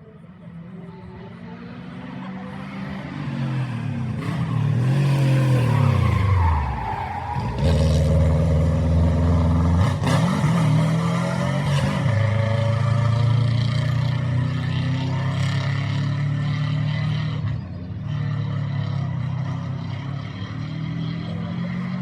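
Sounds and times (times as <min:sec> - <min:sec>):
rally car engine: 0:00.0 - 0:22.0.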